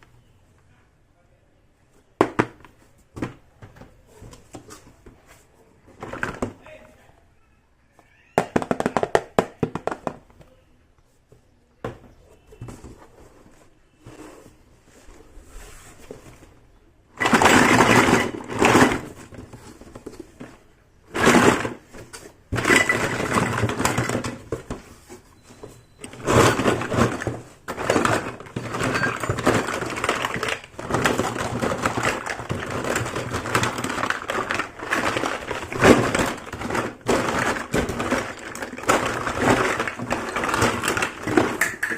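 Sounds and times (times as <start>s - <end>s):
packaging crinkling and rustling: 26.0s - 41.9s.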